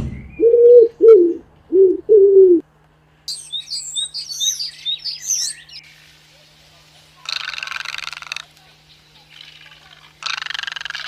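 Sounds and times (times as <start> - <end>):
pigeon cooing: 0.4 - 2.6, 7.3 - 8.5, 9.2 - 11.0
small bird chirping: 3.3 - 6.1, 7.2 - 11.0.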